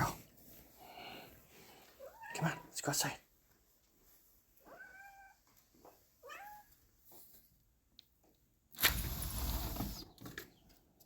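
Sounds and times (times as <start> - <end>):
cat meowing: 4.6 - 5.4, 6.2 - 6.7.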